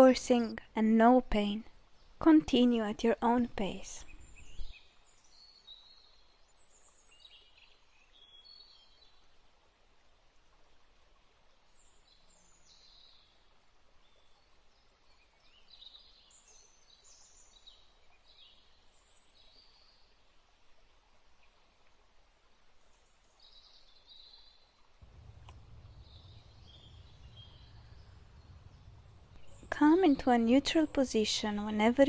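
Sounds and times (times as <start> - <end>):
soft steady hiss: 0.0 - 32.0
songbirds chirping and trilling: 24.2 - 32.0.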